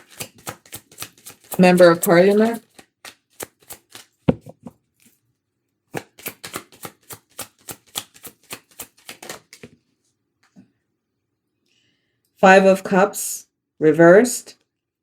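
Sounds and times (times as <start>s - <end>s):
sharp card slaps: 0.0s - 4.5s, 6.0s - 9.7s
cards being shuffled: 0.0s - 5.2s, 6.0s - 9.8s.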